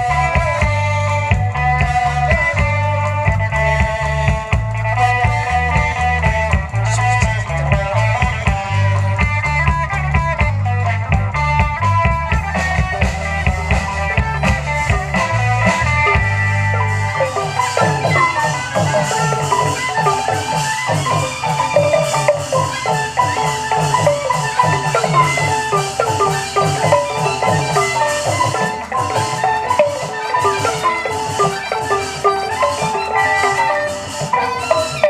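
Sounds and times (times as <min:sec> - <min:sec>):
steady drum rhythm: 0:00.0 - 0:35.0
xylophone-like mallet notes: 0:12.2 - 0:35.0.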